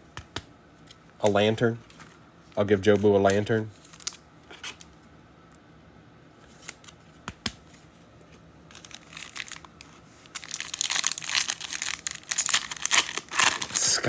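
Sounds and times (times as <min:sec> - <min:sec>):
foil wrapper ripping open: 0:03.8 - 0:04.2, 0:08.7 - 0:14.0.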